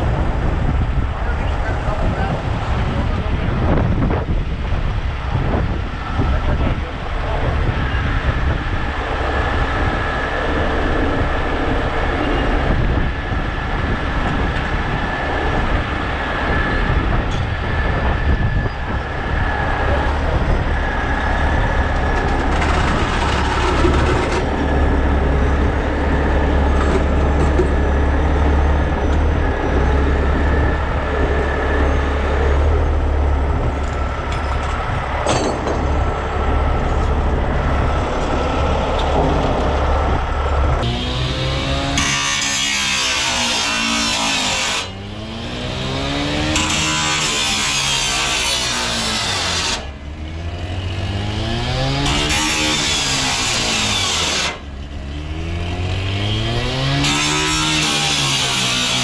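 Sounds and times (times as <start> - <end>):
diesel truck engine rumbling: 0.0 - 42.0.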